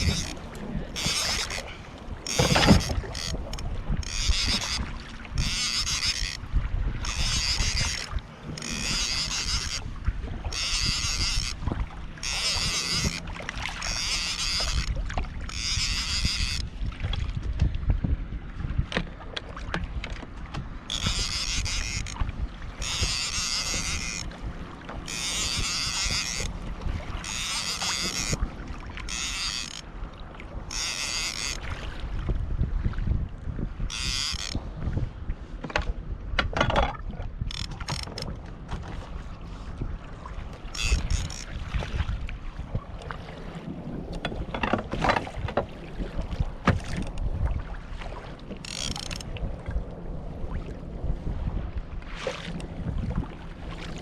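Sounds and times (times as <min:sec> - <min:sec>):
paddle splashing water: 0:00.0 - 0:17.8, 0:18.6 - 0:33.1, 0:35.4 - 0:54.0.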